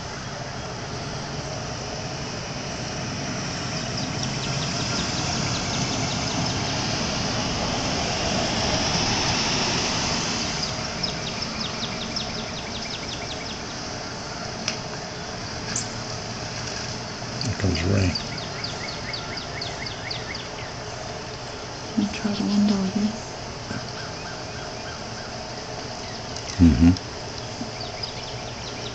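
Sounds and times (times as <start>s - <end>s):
passing vehicle rushing: 1.3s - 12.5s.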